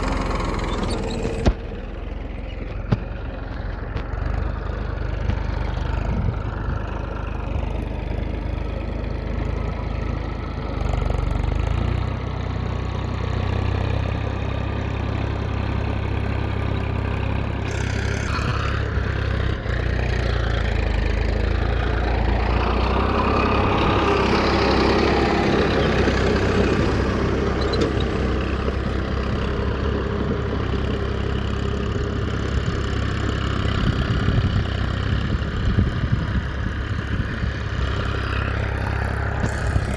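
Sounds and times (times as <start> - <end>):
engine humming: 0.0 - 39.9
busier mechanical sound: 17.6 - 32.0, 32.8 - 39.9.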